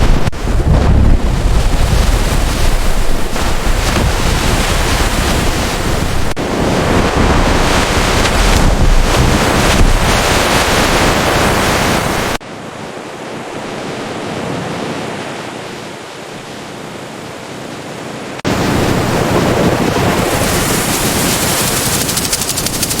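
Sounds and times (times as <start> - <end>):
surf rushing: 0.0 - 12.4, 18.4 - 23.0
wind on microphone: 0.0 - 12.4, 18.4 - 23.0.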